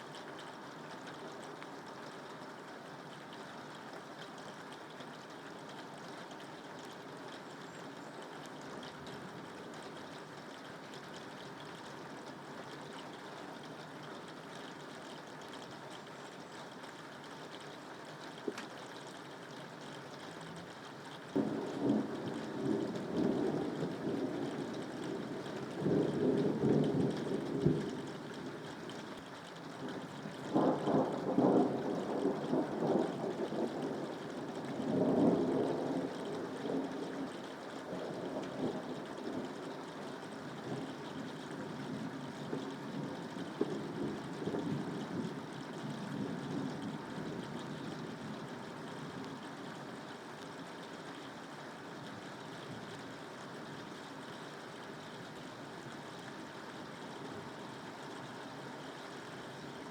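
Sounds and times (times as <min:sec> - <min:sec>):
steady rain: 0:00.0 - 0:59.9
thunder rumbling: 0:21.4 - 0:28.7.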